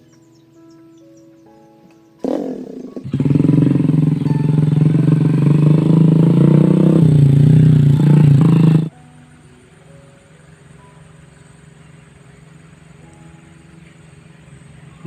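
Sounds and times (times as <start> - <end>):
small motorcycle engine revving: 2.2 - 8.9.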